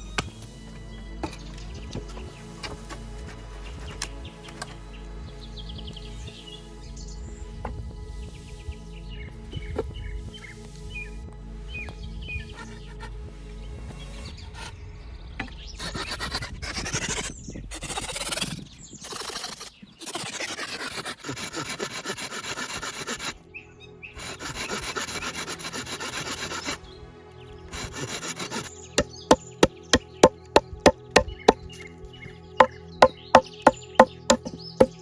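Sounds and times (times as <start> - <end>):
hand saw rasping through wood: 21.2 - 23.4, 24.2 - 26.8, 27.8 - 31.6, 32.6 - 35.0
sharp wooden knocks: 29.0 - 31.6, 33.0 - 35.0.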